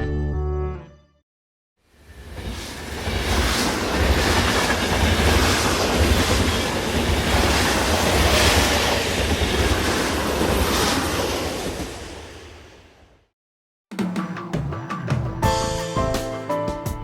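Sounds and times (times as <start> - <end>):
train rumbling on rails: 1.9 - 13.1.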